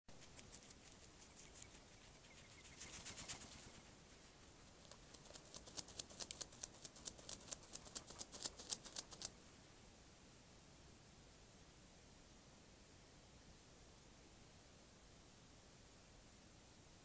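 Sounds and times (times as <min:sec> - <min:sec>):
hedgehog scratching itself: 0:00.2 - 0:09.4.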